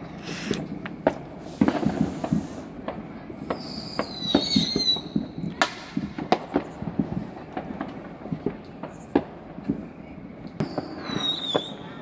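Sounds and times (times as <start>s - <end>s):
fireworks popping and cracking: 0.0s - 12.0s
high wavering whistle: 10.7s - 11.8s.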